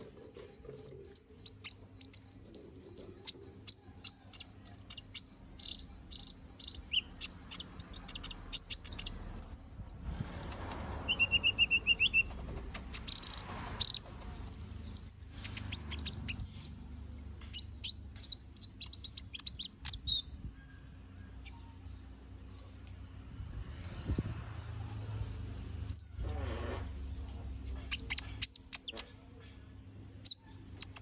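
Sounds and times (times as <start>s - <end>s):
faint low hum: 0.0s - 31.0s
small bird singing high chirps: 0.6s - 22.2s, 25.6s - 26.2s, 27.1s - 29.6s, 30.2s - 31.0s.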